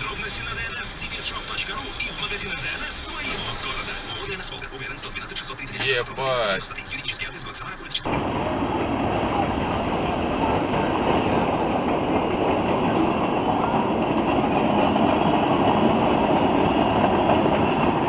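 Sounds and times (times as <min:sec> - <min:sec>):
train wheels rumbling on rails: 0:08.1 - 0:18.0.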